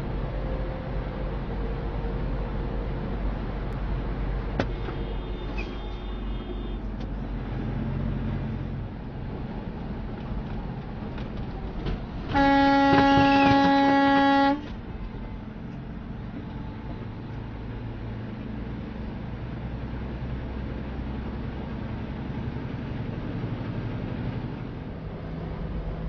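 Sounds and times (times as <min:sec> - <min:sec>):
road and engine noise: 0:00.0 - 0:26.0
vehicle horn blast: 0:04.8 - 0:06.9, 0:12.3 - 0:14.7.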